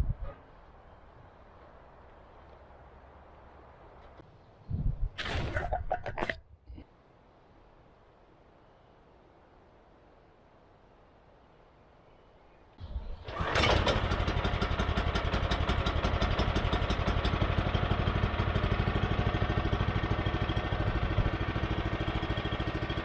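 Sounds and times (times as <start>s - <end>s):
single-cylinder engine starting and running: 12.8s - 23.0s.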